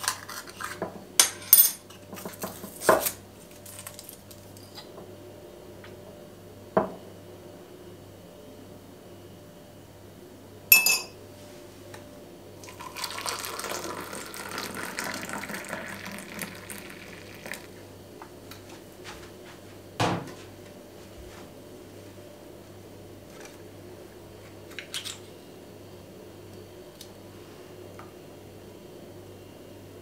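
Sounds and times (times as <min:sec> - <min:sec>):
glass clinking: 0:10.7 - 0:11.2
liquid pouring into a cup: 0:12.6 - 0:17.8
vessel set down knock: 0:20.0 - 0:20.4.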